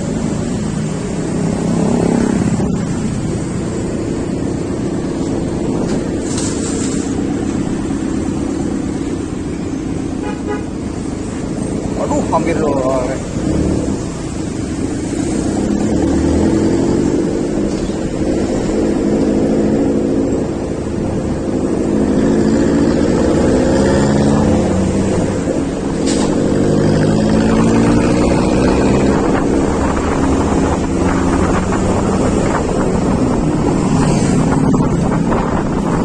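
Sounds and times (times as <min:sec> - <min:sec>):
wind buffeting microphone: 0:13.2 - 0:36.0.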